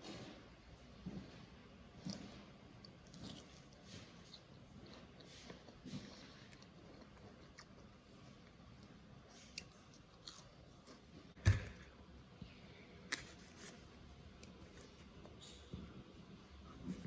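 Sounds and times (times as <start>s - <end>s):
chewing fries: 1.0s - 11.4s.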